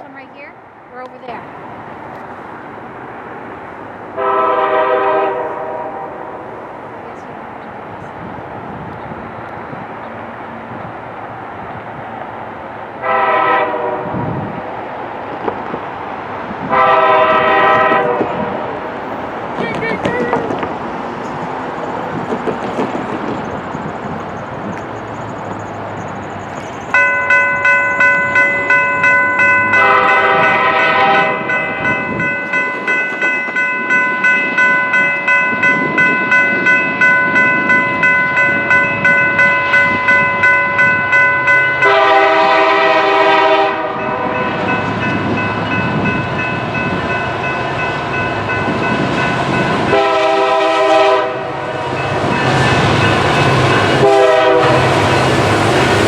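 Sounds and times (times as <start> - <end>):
locomotive horn blasts: 4.2 - 6.5, 13.0 - 14.2, 16.7 - 18.7, 29.6 - 31.6, 41.7 - 44.7, 49.8 - 52.0, 53.8 - 55.3
bell ringing: 26.9 - 42.0, 44.0 - 49.9.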